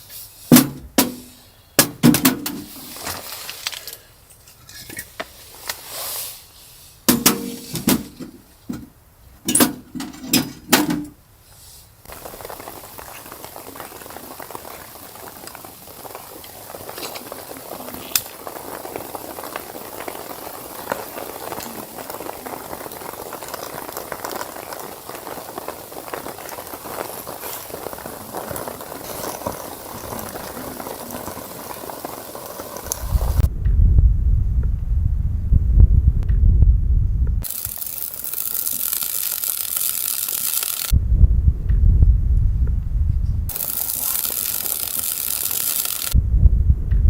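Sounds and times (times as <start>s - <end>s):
fine crackles: 2.6s - 4.2s, 11.4s - 33.5s, 37.4s - 41.0s, 43.2s - 46.2s
liquid bubbling in a pot: 12.1s - 33.5s
loud low rumble: 32.9s - 37.4s, 41.0s - 43.5s, 46.2s - 47.0s.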